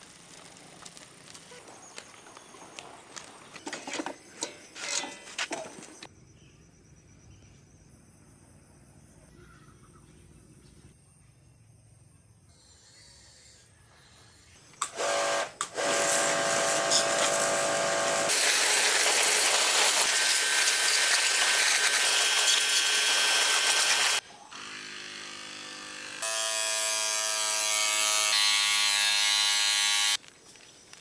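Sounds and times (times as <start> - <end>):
power tool motor whine: 14.8 - 30.2
harsh even hiss: 15.0 - 24.2.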